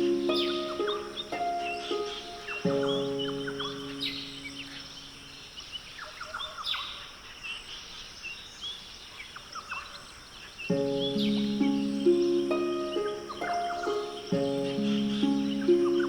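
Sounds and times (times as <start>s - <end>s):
held music chord: 0.0s - 5.3s, 10.7s - 16.0s
light hiss: 0.0s - 9.2s, 10.3s - 16.0s
birds chirping and calling: 0.0s - 16.0s.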